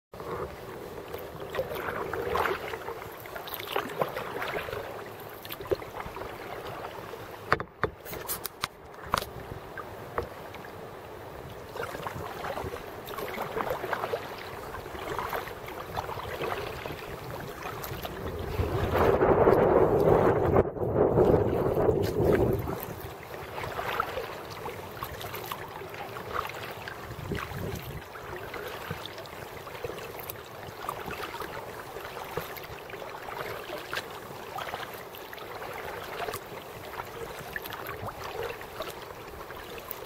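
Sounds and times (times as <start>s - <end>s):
paddle splashing in water: 0.1s - 40.0s.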